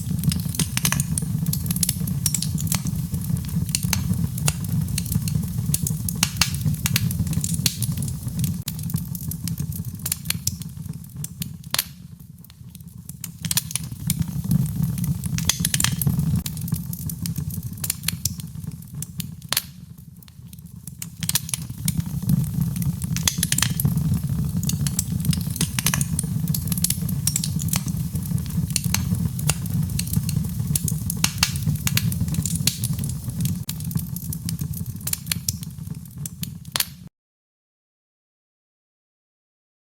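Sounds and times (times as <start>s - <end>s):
fire flames rumbling: 0.0s - 36.8s
logs crackling and popping: 0.0s - 37.0s.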